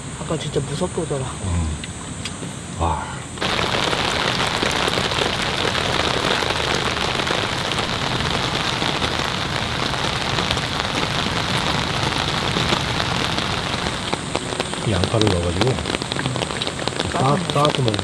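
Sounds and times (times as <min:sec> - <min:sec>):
heavy rain pouring: 0:02.7 - 0:18.0.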